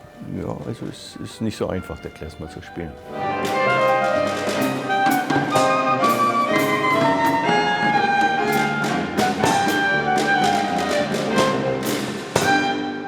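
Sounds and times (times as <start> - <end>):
clarinet melody: 0.0 - 13.0
piano: 0.0 - 13.0
violin melody: 0.0 - 13.0
percussion strikes: 3.1 - 13.0.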